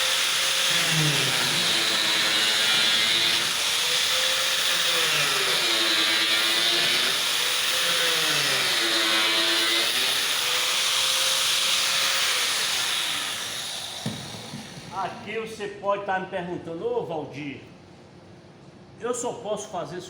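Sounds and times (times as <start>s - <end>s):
small electric motor running: 0.0s - 15.2s.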